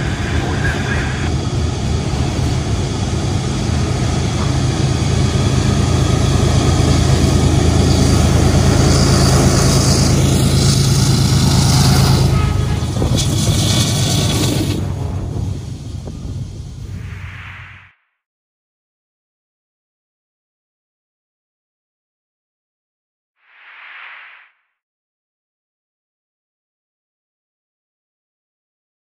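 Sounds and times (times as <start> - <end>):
train wheels rolling: 0.0 - 16.6
diesel engine drone: 0.0 - 17.0.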